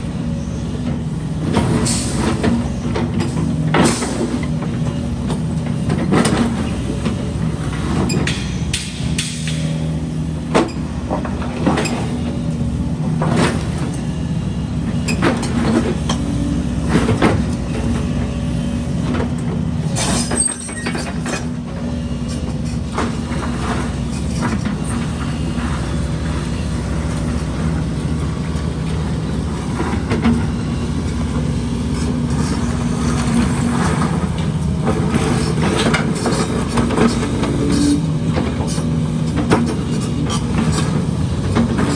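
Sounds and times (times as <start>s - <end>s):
diesel excavator engine running: 0.0s - 41.9s.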